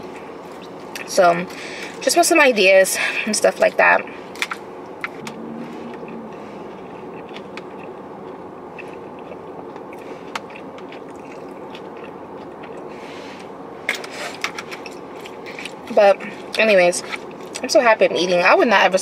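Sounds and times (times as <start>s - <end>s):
low background hum: 0.0s - 19.0s
person chewing food: 6.7s - 13.5s.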